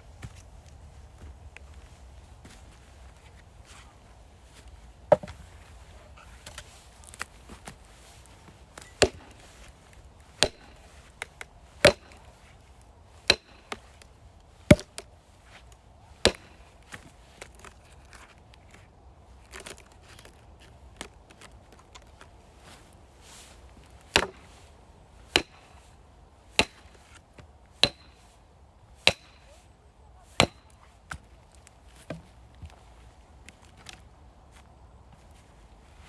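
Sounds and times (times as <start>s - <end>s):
axe chopping firewood: 5.1s - 5.4s, 8.8s - 9.5s, 10.3s - 12.3s, 13.2s - 14.0s, 14.7s - 15.1s, 16.2s - 16.6s, 24.0s - 24.6s, 25.3s - 25.8s, 26.5s - 27.0s, 27.8s - 28.2s, 29.0s - 29.6s, 30.4s - 31.2s
wood knocking: 5.1s - 5.4s.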